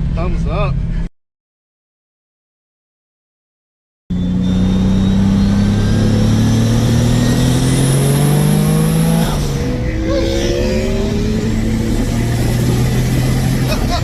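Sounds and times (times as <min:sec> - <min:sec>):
turbo whistle: 0:04.1 - 0:06.2
car engine accelerating: 0:04.1 - 0:14.0.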